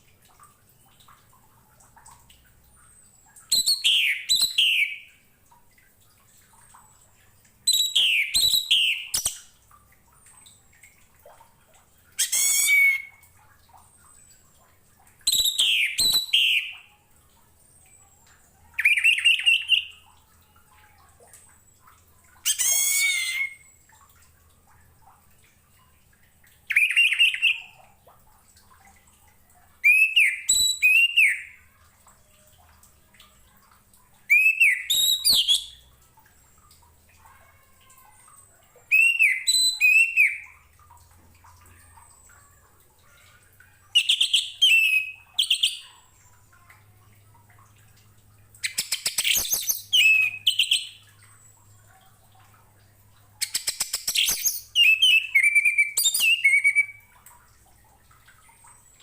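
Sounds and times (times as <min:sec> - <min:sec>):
thrush singing whistled phrases: 0:03.5 - 0:05.0, 0:07.7 - 0:09.4, 0:15.3 - 0:16.7, 0:29.8 - 0:31.6, 0:34.3 - 0:35.8, 0:38.9 - 0:40.4, 0:48.7 - 0:51.0, 0:53.9 - 0:57.0.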